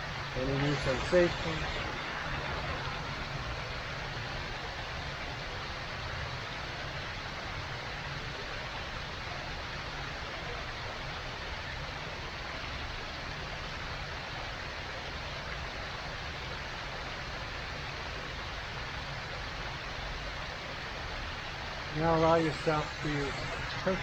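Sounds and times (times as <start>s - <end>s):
steady rushing noise: 0.0s - 10.6s, 19.7s - 24.0s.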